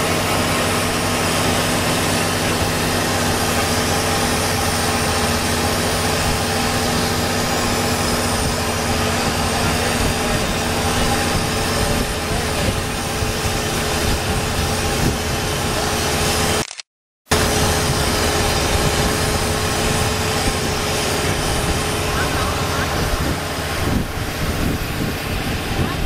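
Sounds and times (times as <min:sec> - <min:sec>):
boat diesel engine running: 0:00.0 - 0:16.7, 0:17.3 - 0:26.0
constant rushing noise: 0:00.0 - 0:16.7, 0:17.3 - 0:26.0.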